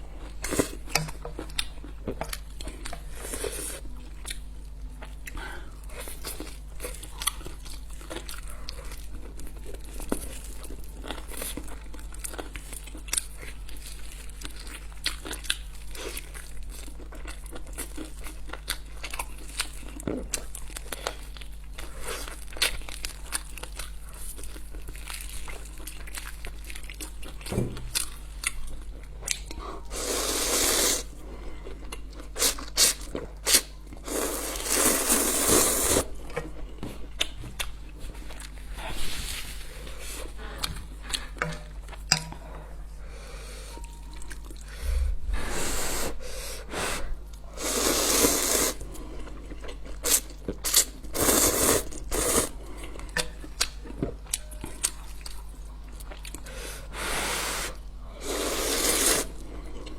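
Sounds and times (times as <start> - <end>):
steady low hum: 36.0 - 48.0.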